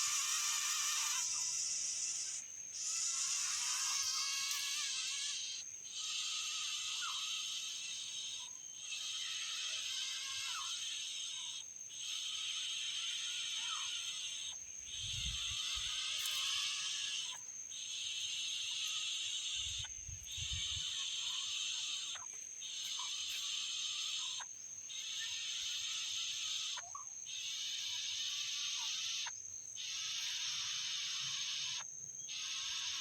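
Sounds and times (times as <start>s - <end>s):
insects buzzing chorus: 0.0s - 33.0s.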